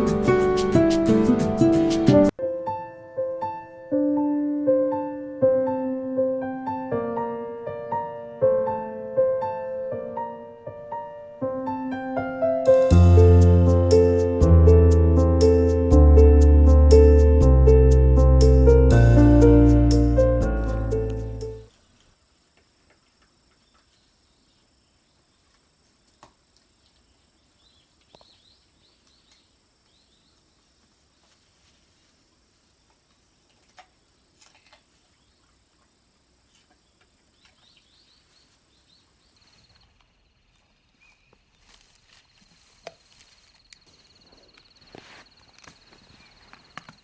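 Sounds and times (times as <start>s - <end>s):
high insect drone: 0.0s - 2.3s.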